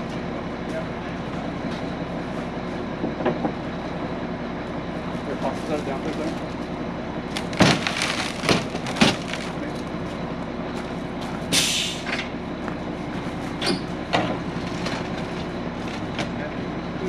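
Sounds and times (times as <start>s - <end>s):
diesel engine running: 0.0s - 17.0s
air hiss: 11.5s - 12.1s.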